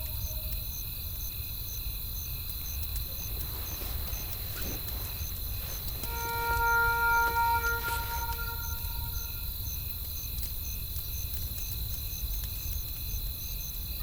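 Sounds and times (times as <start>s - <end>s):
crickets chirping: 0.0s - 14.0s
low rumble of wind and fire: 0.1s - 6.1s, 7.8s - 14.0s
crackles of burning wood: 0.5s - 8.7s, 9.5s - 14.0s
bell-like musical tone: 6.1s - 9.4s.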